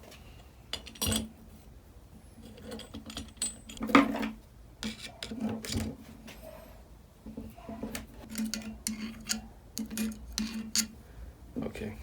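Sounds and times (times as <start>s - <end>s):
metal engine parts clicking and scraping: 2.4s - 3.8s, 8.2s - 11.0s.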